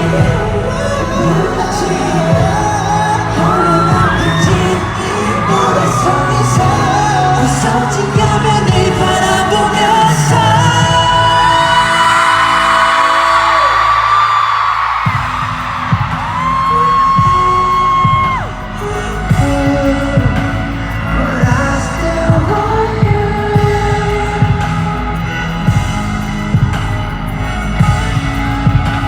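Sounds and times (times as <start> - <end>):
live pop concert music: 0.0 - 29.0
steady drum beat: 0.0 - 29.0.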